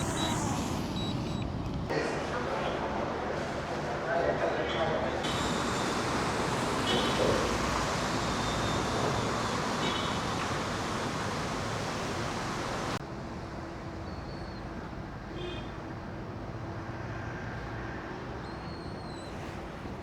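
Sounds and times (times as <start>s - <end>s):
passing traffic rush: 0.0s - 1.9s, 5.2s - 13.9s, 14.8s - 20.0s.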